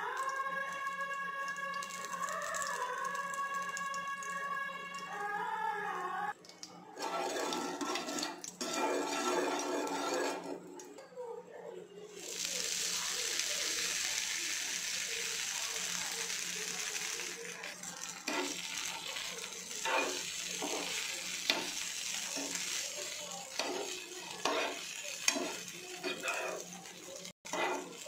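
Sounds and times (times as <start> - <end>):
food sizzling in hot oil: 7.0 - 10.6, 12.2 - 28.0
spatula knocking and scraping pan: 7.0 - 10.6, 19.8 - 22.8, 23.5 - 26.6, 27.5 - 28.0.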